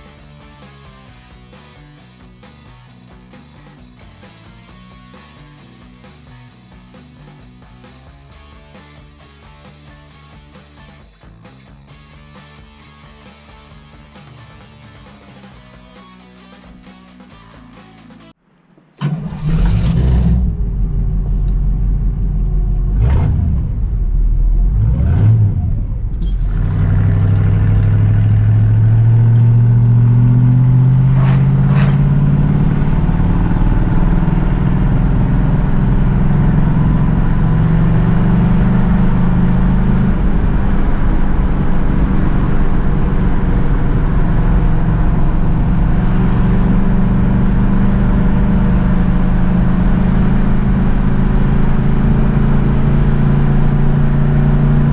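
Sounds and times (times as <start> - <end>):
car engine revving and cruising: 19.0 - 54.9.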